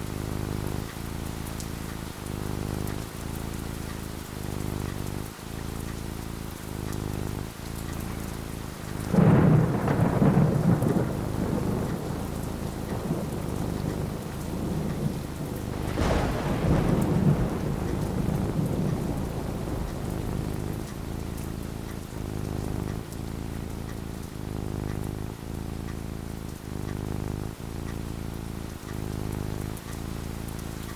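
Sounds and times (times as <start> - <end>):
steady rain falling: 0.0 - 30.9
thunder claps: 8.8 - 25.4.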